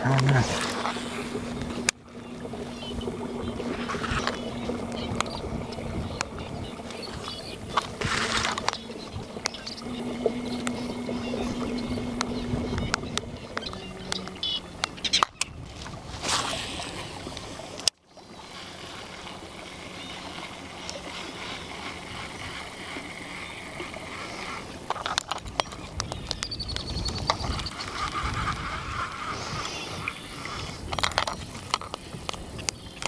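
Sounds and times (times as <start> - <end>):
water around boat: 0.0 - 33.0
wind: 0.0 - 33.0.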